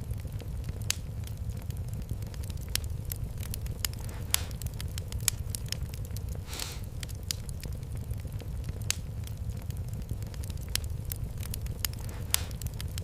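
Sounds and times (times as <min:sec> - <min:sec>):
fireplace fire crackling: 0:00.0 - 0:13.0
brief hiss: 0:06.4 - 0:06.9.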